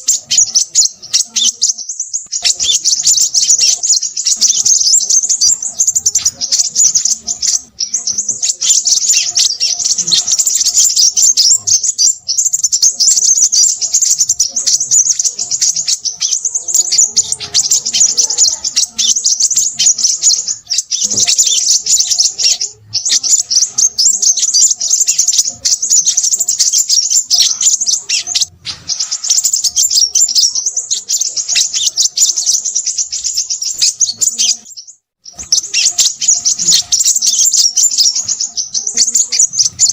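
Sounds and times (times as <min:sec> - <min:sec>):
bird twittering chatter: 0:00.0 - 0:39.9.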